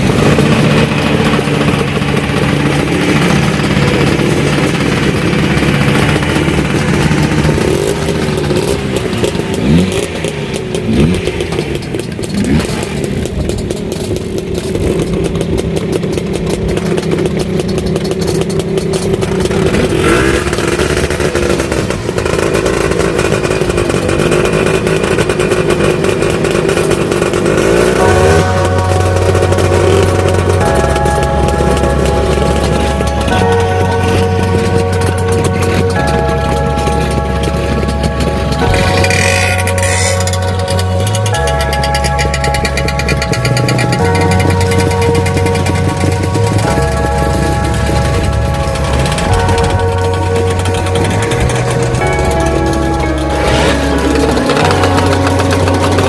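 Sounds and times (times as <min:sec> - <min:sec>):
scooter engine revs: 0:00.0 - 0:56.0
scooter engines running: 0:00.0 - 0:56.0.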